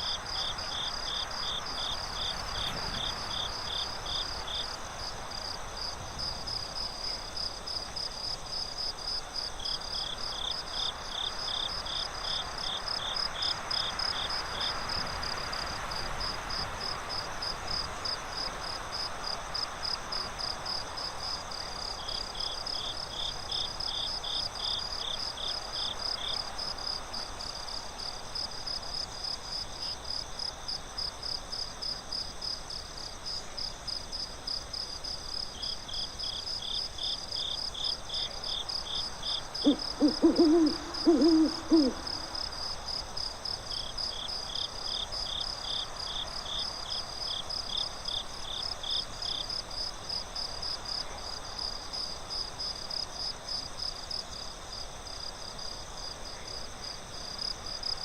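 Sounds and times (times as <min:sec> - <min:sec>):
crickets chirping: 0:00.0 - 0:58.0
lower cricket chirp: 0:00.0 - 0:58.0.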